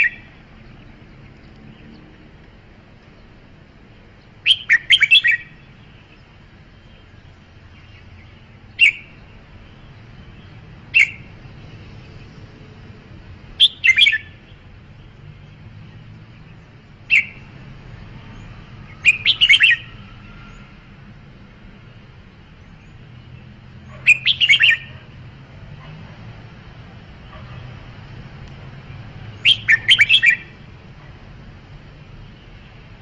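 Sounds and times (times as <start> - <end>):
bird chirping: 0.0 - 12.5, 13.5 - 20.8, 21.9 - 26.0, 28.8 - 30.6.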